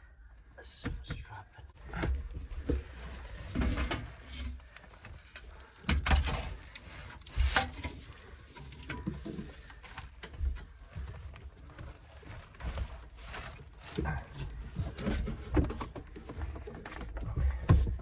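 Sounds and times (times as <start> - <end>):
materials knocking and scraping: 12.4 - 18.0.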